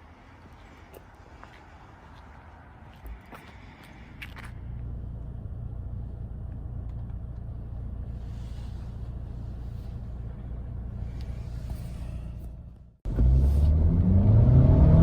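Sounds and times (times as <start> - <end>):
car engine idling: 3.7 - 14.0.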